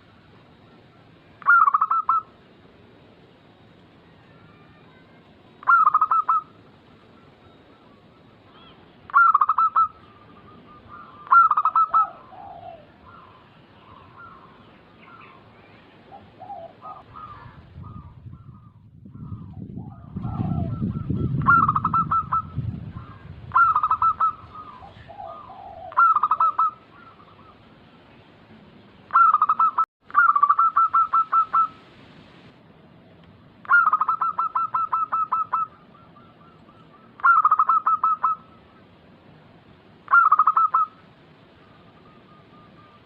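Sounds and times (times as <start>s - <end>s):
dove cooing in staccato notes: 5.6s - 6.5s, 9.1s - 14.5s, 16.1s - 18.0s, 19.8s - 27.6s, 29.1s - 31.7s, 33.6s - 38.6s, 40.1s - 41.0s.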